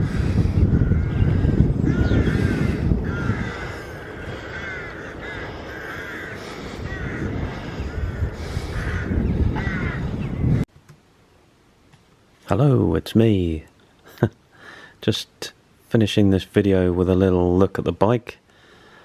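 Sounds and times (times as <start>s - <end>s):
birds calling: 0.0s - 10.7s
steady low rumble: 0.0s - 10.7s.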